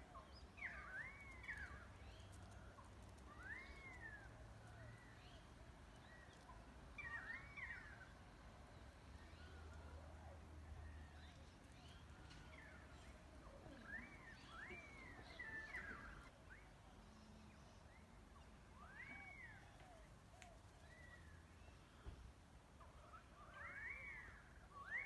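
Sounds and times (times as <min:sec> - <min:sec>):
birds whistling: 0:03.3 - 0:05.4, 0:11.8 - 0:16.7, 0:18.8 - 0:20.1, 0:23.1 - 0:25.0.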